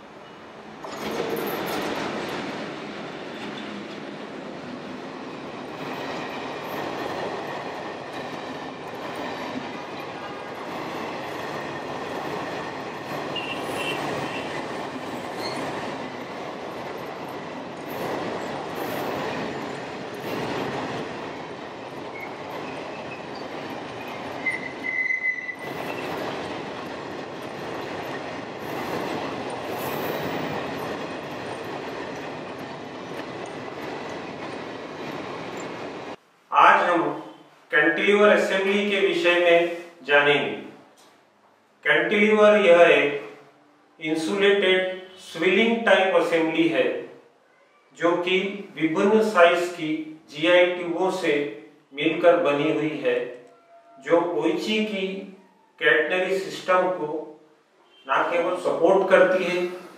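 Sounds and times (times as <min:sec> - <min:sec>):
train wheels rumbling on rails: 0:00.0 - 0:36.2
high wheel squeal: 0:13.3 - 0:14.6, 0:15.2 - 0:15.7, 0:22.1 - 0:26.3.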